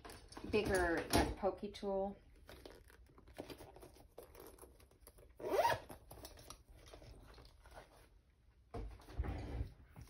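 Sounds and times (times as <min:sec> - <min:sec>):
rustling and handling of supplies: 0:00.0 - 0:10.0
zipper being pulled: 0:04.2 - 0:06.4.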